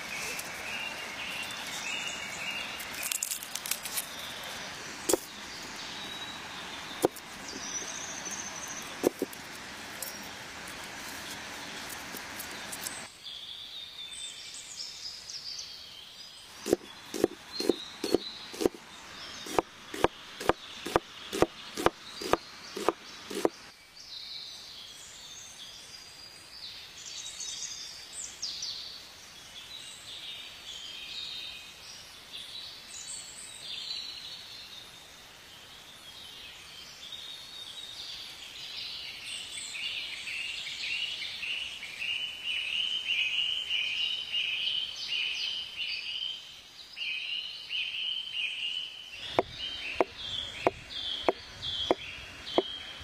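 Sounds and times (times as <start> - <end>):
birds singing and chirping: 0.0 - 10.3, 11.0 - 25.5, 38.8 - 53.0
knife chopping on wooden board: 7.0 - 7.2, 9.0 - 9.4, 16.6 - 18.8, 19.4 - 23.6, 49.3 - 52.0.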